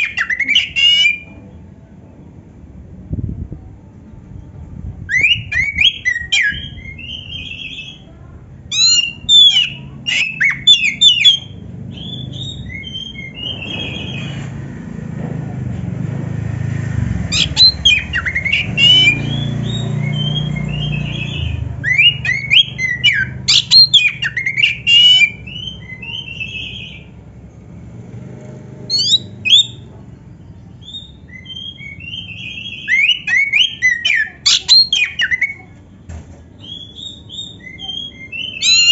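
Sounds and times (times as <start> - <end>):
bird whistles and chatter: 0.0 - 1.3, 5.1 - 8.1, 8.7 - 14.6, 17.3 - 27.1, 28.9 - 29.9, 30.8 - 35.8, 36.6 - 38.9
low rumbling background noise: 0.0 - 38.9.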